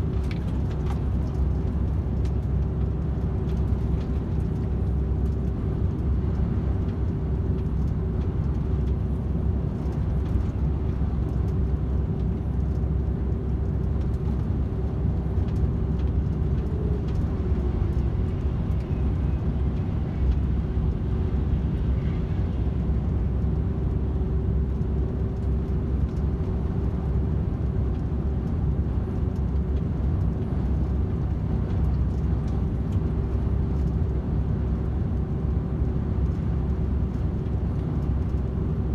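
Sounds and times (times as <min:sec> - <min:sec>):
lorry diesel engine drone: 0:00.0 - 0:38.9.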